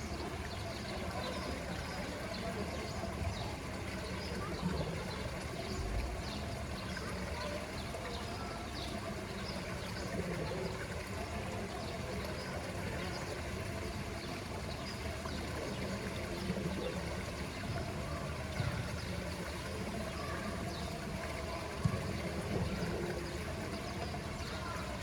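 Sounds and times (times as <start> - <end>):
water trickling and running: 0.0 - 25.0.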